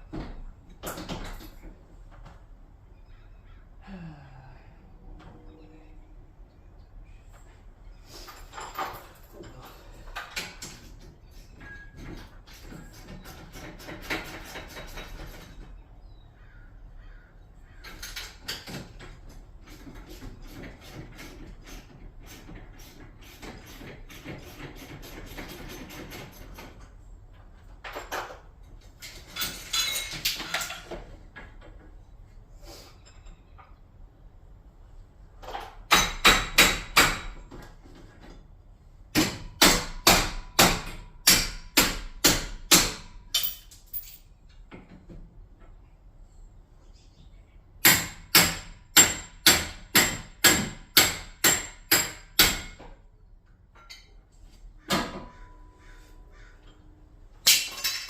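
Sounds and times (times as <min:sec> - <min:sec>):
metallic clattering and ringing: 0:29.1 - 0:30.9.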